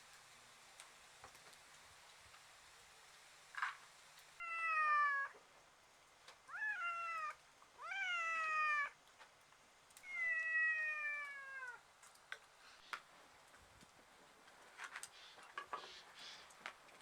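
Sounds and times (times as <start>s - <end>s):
cat meowing: 4.4s - 5.4s, 6.5s - 9.0s, 10.0s - 11.8s.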